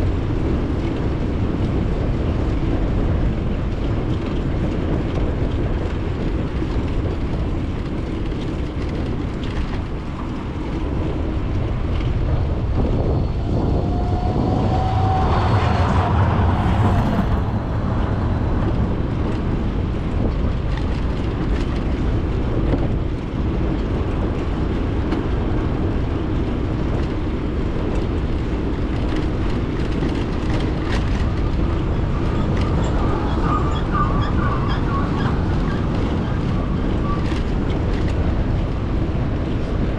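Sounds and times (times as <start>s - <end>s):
bicycle tyre and road noise: 0.0s - 39.9s
wind rushing past microphone: 0.0s - 39.9s
short rising tone: 12.9s - 19.4s.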